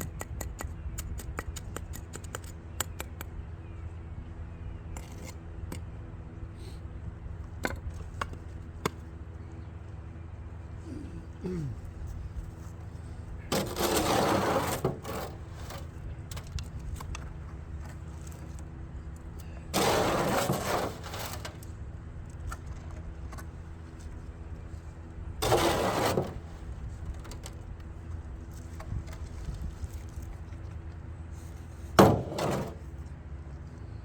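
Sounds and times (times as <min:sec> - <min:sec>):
low engine hum: 0:00.0 - 0:34.0
tool scraping wet concrete: 0:13.5 - 0:16.0, 0:19.7 - 0:21.7, 0:25.4 - 0:26.7, 0:32.0 - 0:32.9.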